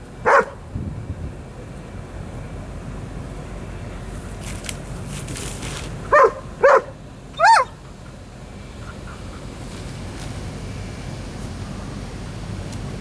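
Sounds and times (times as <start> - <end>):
low background rumble: 0.0 - 13.0
dog barking: 0.2 - 0.6, 6.1 - 7.8.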